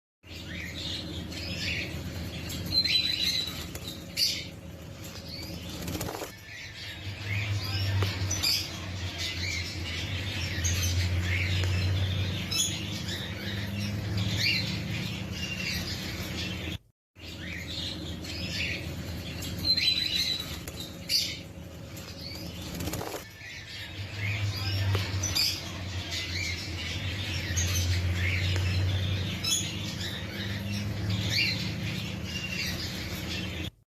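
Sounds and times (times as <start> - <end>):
lovebirds chirping: 0.2 - 33.8
wings flapping: 5.4 - 6.4, 22.3 - 23.3.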